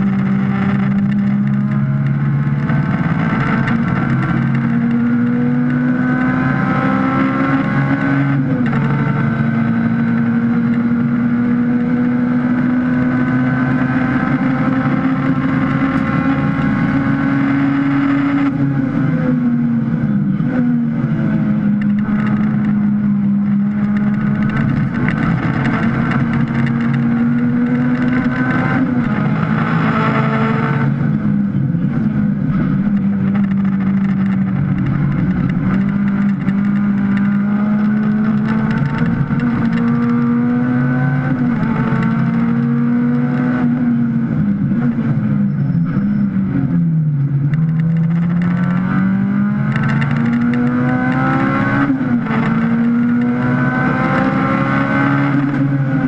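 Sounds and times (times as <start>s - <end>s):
race car engine at high revs: 0.0s - 56.0s
road and wind noise: 0.0s - 56.0s.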